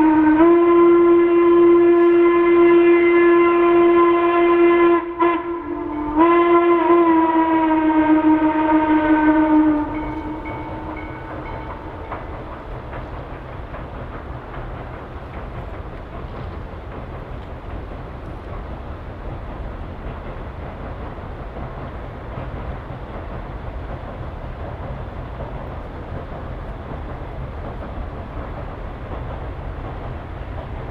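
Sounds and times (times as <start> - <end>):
steam locomotive whistle blasts: 0.0 - 12.1
train rumbling by: 0.0 - 30.9
train wheel clicks: 9.7 - 30.9.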